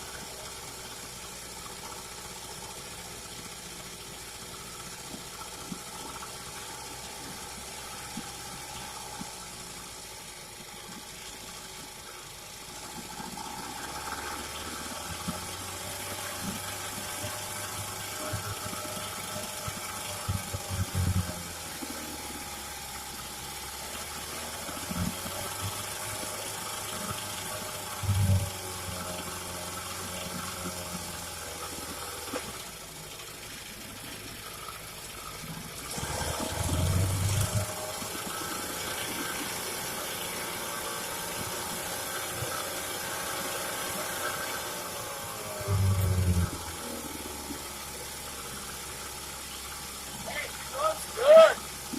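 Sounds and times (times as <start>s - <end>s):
outboard motor idling: 0.0s - 51.9s
low motor burst: 12.8s - 31.0s, 35.5s - 50.9s.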